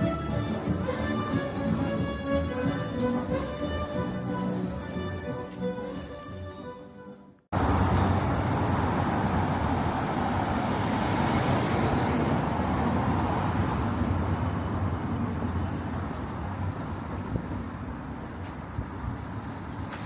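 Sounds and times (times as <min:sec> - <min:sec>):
motor vehicle rumble: 0:07.5 - 0:20.0.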